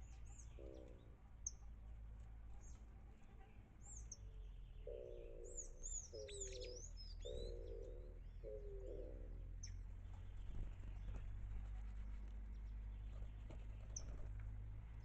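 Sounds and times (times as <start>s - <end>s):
dove cooing: 0.0s - 1.2s, 4.8s - 9.6s
small birds chirping: 0.0s - 15.0s.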